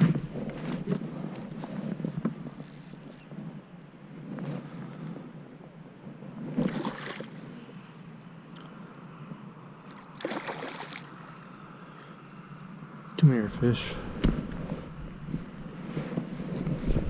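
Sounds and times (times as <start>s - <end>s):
water lapping around kayak hull: 0.0s - 5.6s, 6.2s - 12.9s
paddle splashing: 10.0s - 11.2s.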